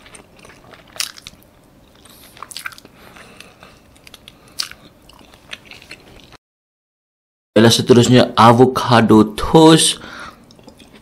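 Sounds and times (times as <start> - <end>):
chewing toast: 0.0 - 6.4, 10.4 - 11.0.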